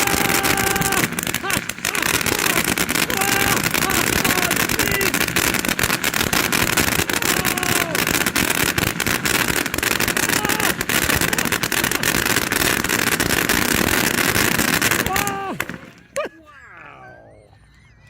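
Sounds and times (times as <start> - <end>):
firework fountain rushing hiss: 0.0 - 16.2
firework crackling: 0.0 - 16.3.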